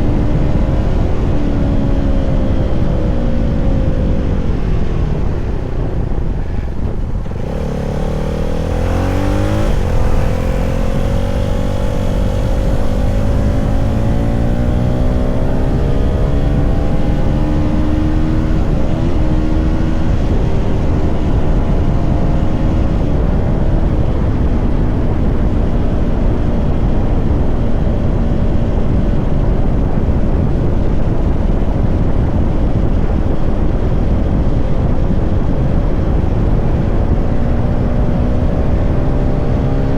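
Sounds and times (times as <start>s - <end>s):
motorcycle engine revving under load: 6.9s - 29.1s.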